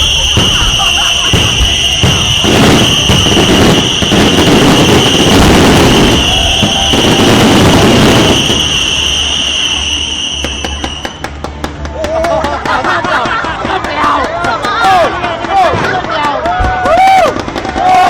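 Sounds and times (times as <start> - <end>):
high whistling tone: 0.0 - 11.2
fireworks bursts and crackling: 0.0 - 18.0.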